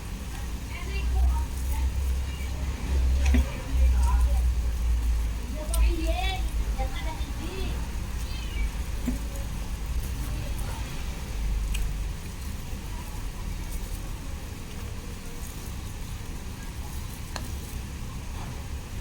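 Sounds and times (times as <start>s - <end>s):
road traffic rumble: 0.0s - 19.0s
vehicle passing: 0.7s - 15.6s.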